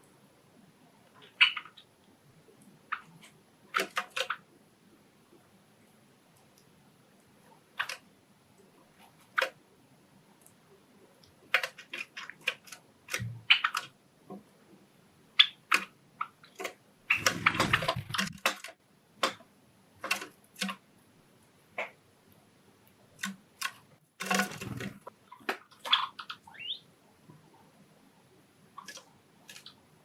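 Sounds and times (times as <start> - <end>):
birds tapping and clicking: 11.5 - 14.4, 15.4 - 20.8, 23.2 - 26.7, 28.8 - 29.8.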